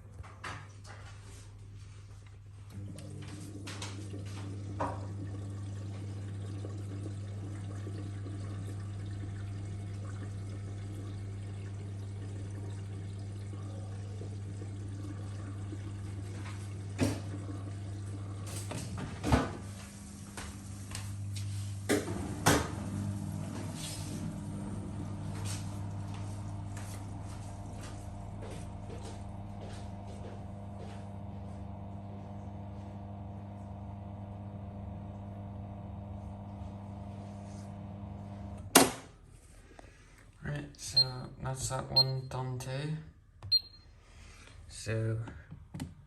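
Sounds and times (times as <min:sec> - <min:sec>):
washing machine pump humming: 0:02.6 - 0:39.2, 0:43.4 - 0:44.4
water running through pump: 0:02.7 - 0:39.0.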